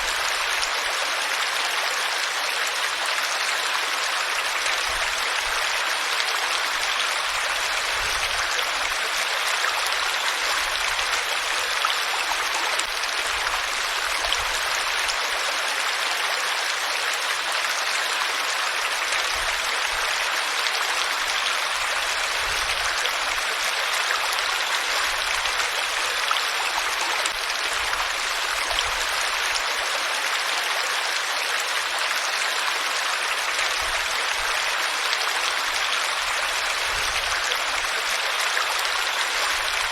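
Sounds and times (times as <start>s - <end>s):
water rushing: 18.2s - 39.9s.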